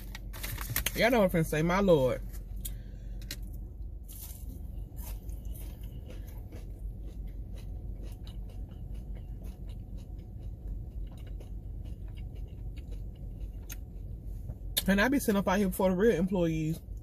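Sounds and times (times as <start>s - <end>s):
low hum: 0.0s - 17.0s
person chewing crunchy food: 2.4s - 14.8s.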